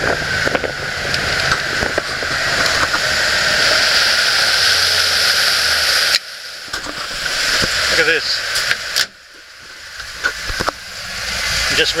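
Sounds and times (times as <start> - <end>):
boat engine drone: 0.0 - 12.0
rush of wind and water: 0.0 - 12.0.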